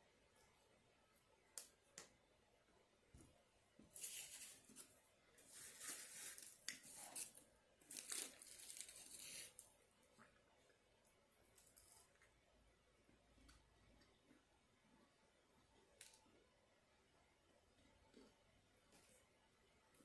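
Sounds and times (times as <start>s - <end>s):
paper crinkling and rustling: 4.0s - 9.7s.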